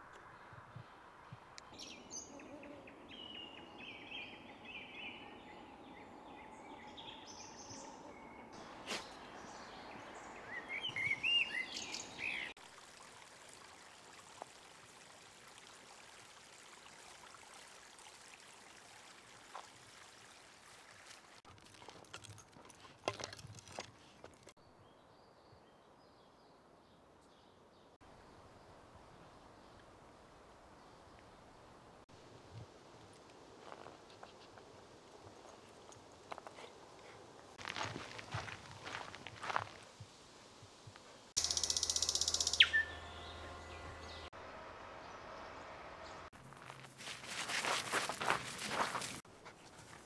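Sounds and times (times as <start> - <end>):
small birds singing and chirping: 1.6 - 12.6, 41.4 - 44.3
clicks and rustles: 21.5 - 24.6
steady outdoor hiss: 26.6 - 50.0.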